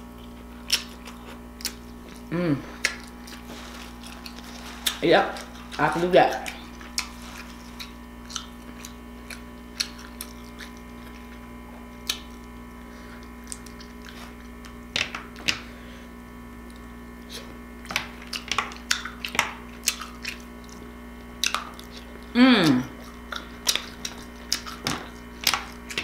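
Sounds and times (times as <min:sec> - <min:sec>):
person chewing: 0:00.0 - 0:16.0, 0:16.6 - 0:26.0
steady low hum: 0:00.0 - 0:26.0
lip smacks and mouth clicks: 0:06.4 - 0:11.4, 0:12.0 - 0:12.5, 0:13.4 - 0:14.7, 0:18.2 - 0:20.8, 0:21.4 - 0:22.0, 0:23.0 - 0:26.0.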